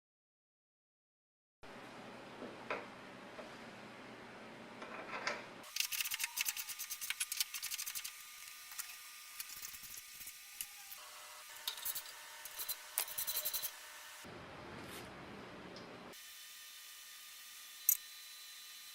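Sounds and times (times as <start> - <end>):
hand tool scraping metal: 8.7 - 11.0, 11.6 - 13.8.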